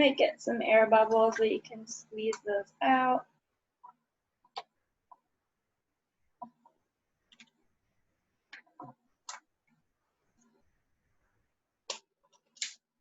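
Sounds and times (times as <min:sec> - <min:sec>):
plastic sheet clicking and crackling: 0:11.9 - 0:12.9.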